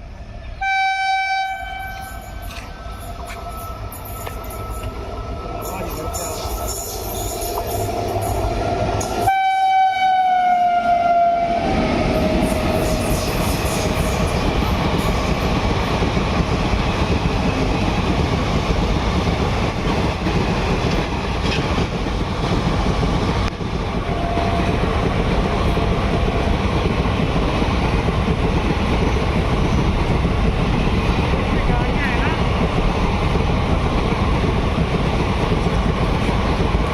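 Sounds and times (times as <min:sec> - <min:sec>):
train passing at speed: 0:00.0 - 0:36.9
train horn: 0:00.6 - 0:05.0, 0:09.0 - 0:12.6, 0:24.1 - 0:24.8.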